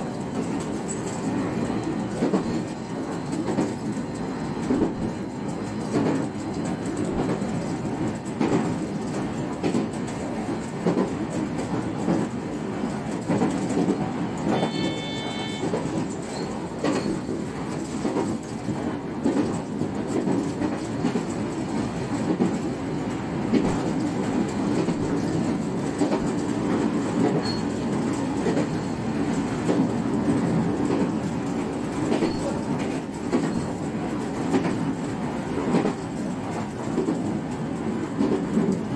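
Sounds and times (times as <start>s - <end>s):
train rolling rumble: 0.0s - 38.9s
train wheels clattering: 0.0s - 38.9s
brief high tone: 14.5s - 15.8s.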